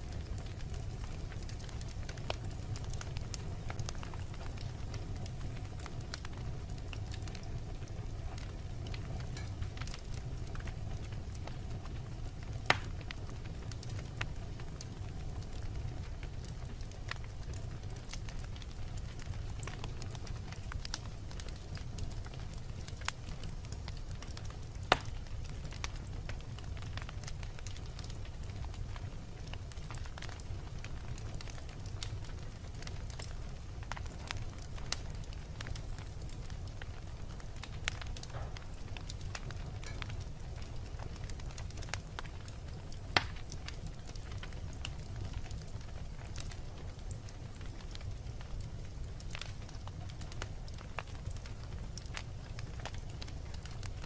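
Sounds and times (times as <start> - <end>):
fire crackling in a fireplace: 0.0 - 54.0
loud sharp pops: 12.7 - 12.9.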